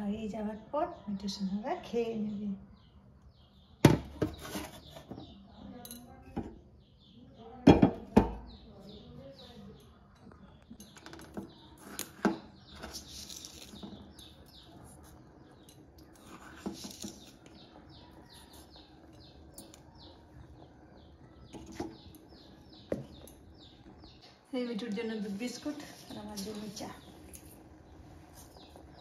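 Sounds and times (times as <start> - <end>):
kitchenware clicks and knocks: 7.7 - 8.4.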